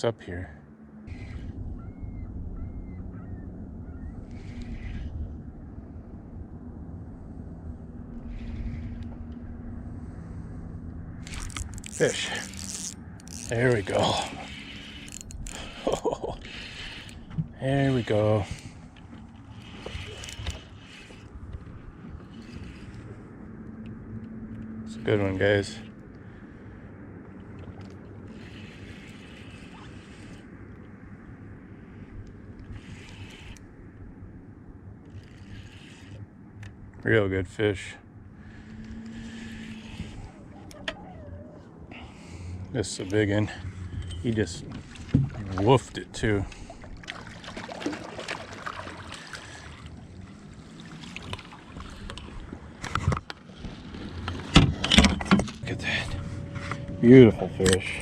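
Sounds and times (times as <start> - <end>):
wind and water rumble: 0.0 - 58.0.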